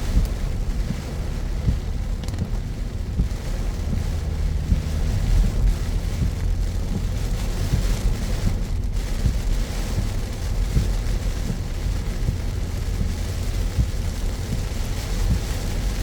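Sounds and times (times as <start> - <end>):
car road and engine rumble: 0.0 - 16.0
rain and tyre spray hiss: 0.0 - 16.0.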